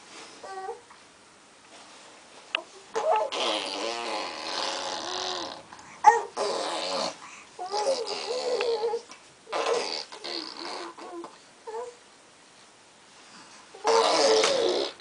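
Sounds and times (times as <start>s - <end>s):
baby babbling and cooing: 2.6s - 12.0s, 13.8s - 15.0s
baby squealing: 3.0s - 11.2s, 13.8s - 15.0s.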